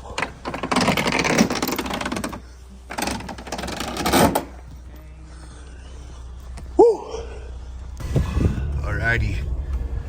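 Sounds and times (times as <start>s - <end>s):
objects rattling and clattering: 0.0s - 4.6s.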